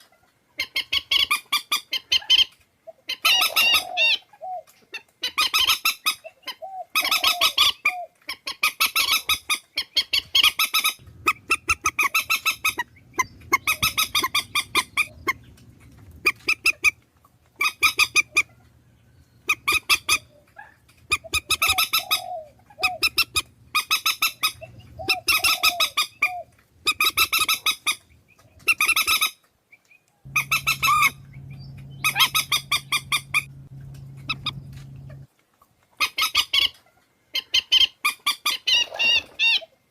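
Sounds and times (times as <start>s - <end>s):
swamphen honking calls: 11.0s - 17.0s, 30.3s - 35.2s
faint low hum: 11.0s - 27.2s, 30.3s - 35.3s.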